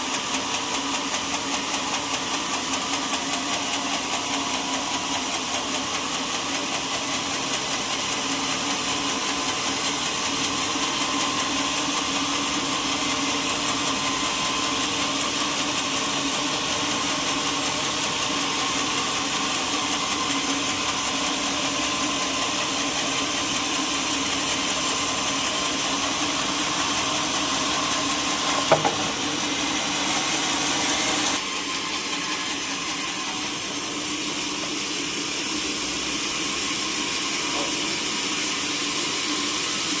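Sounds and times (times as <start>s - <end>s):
sawmill machinery running: 0.0s - 40.0s
sharp knock: 28.6s - 29.2s.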